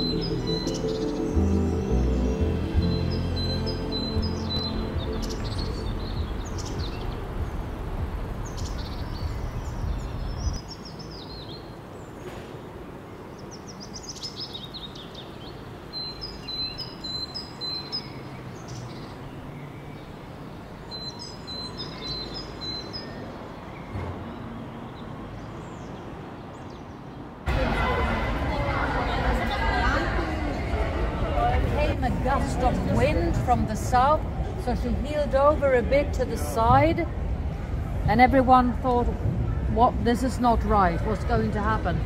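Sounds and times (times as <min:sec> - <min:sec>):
background music with low notes: 0:00.0 - 0:08.3
birds chirping and singing: 0:00.0 - 0:11.7, 0:20.9 - 0:23.9.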